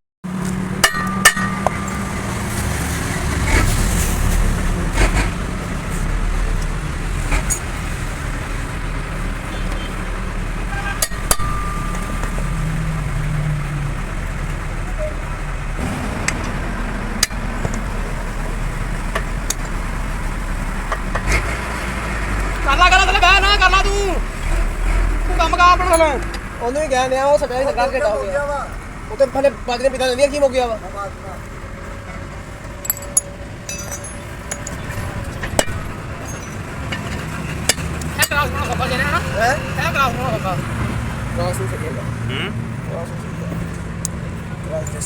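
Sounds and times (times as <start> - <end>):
vehicle engine hum: 0.2 - 45.0
sharp metallic clinks: 0.8 - 3.0, 11.0 - 13.3, 32.8 - 36.8.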